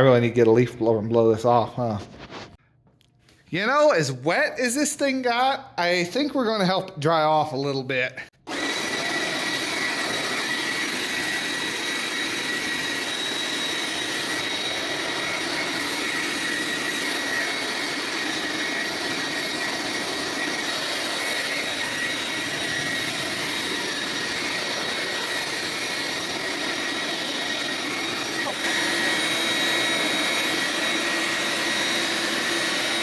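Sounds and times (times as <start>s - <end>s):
leaf blower running: 8.4s - 33.0s.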